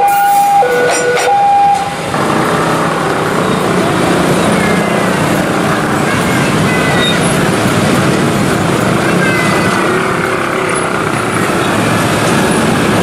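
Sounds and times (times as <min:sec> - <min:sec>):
wheel-on-rail noise: 0:00.1 - 0:13.0
faint high wheel squeals: 0:06.5 - 0:07.5.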